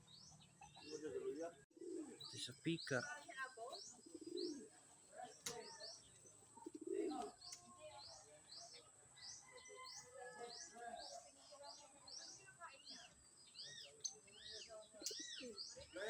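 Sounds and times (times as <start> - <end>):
small birds chirping: 0.0 - 16.0
pigeon cooing: 0.6 - 2.3, 4.0 - 4.8, 6.5 - 7.4.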